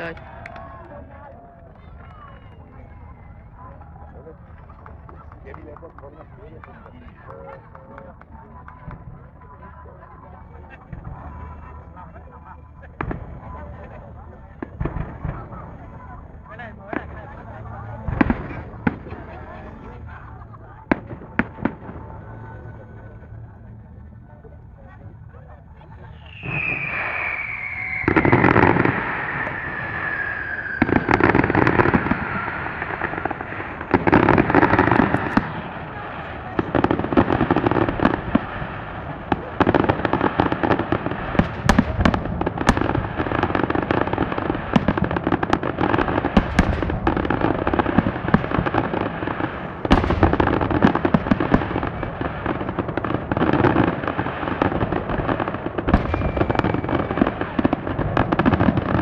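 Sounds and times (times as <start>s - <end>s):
fireworks crackling and banging: 0.0s - 59.0s
firework whistle falling in pitch: 26.1s - 33.3s.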